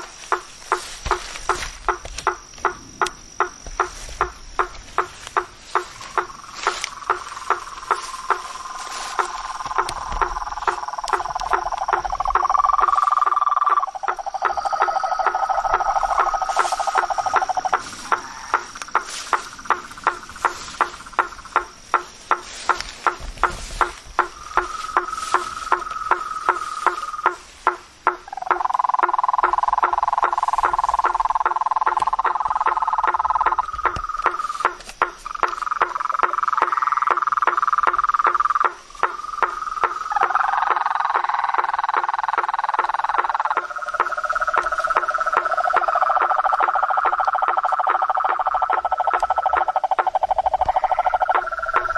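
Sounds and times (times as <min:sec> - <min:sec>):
sharp clicks: 0:00.0 - 0:40.1
frogs knocking calls: 0:00.0 - 0:51.9
high insect whine: 0:00.0 - 0:51.9.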